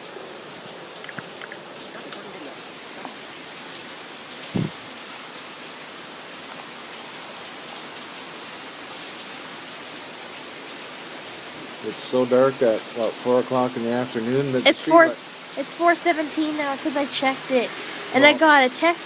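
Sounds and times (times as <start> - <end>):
heavy rain: 0.0 - 19.0
drip ticks: 0.9 - 2.3
brief thump: 4.6 - 4.8.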